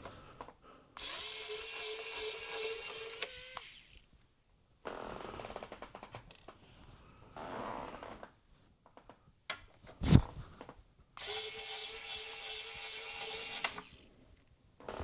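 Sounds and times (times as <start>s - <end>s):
electric screwdriver whine: 1.0s - 4.0s, 11.2s - 14.1s.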